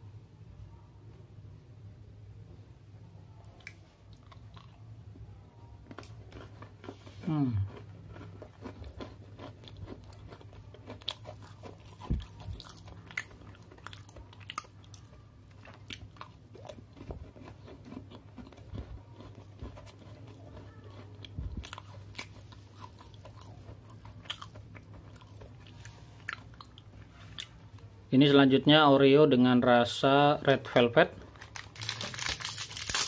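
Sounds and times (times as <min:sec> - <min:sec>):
low steady hum: 0:00.0 - 0:33.0
person chewing crunchy cookie: 0:03.4 - 0:05.2, 0:05.8 - 0:27.8, 0:31.1 - 0:33.0.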